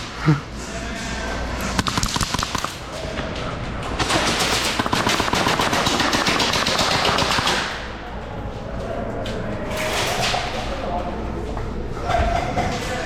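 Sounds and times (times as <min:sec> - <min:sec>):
airsoft guns firing full-auto: 0:01.7 - 0:03.0, 0:04.0 - 0:08.0.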